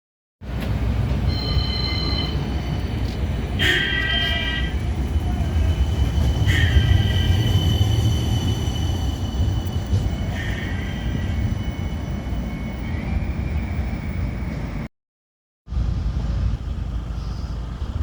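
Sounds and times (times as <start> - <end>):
tram rumbling on track: 0.4 - 14.9, 15.7 - 18.0
wheels squealing on rail: 1.1 - 14.1.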